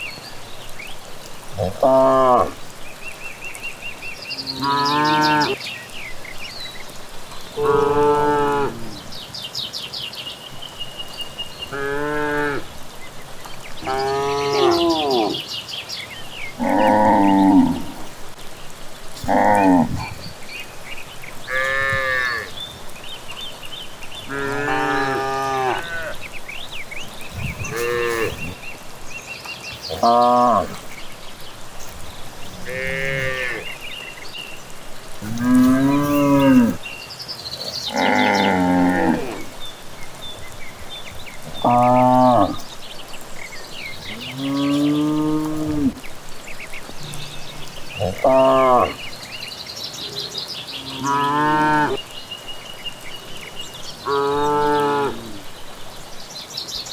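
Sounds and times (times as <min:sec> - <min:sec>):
birds chirping: 0:00.0 - 0:56.9
cattle mooing: 0:07.6 - 0:09.0, 0:13.8 - 0:15.4, 0:16.6 - 0:18.1, 0:21.5 - 0:22.6, 0:24.3 - 0:26.2, 0:27.4 - 0:28.6, 0:29.9 - 0:30.9, 0:32.5 - 0:33.7, 0:35.2 - 0:36.8, 0:37.9 - 0:39.5, 0:41.5 - 0:42.6, 0:44.1 - 0:46.0, 0:47.0 - 0:49.0.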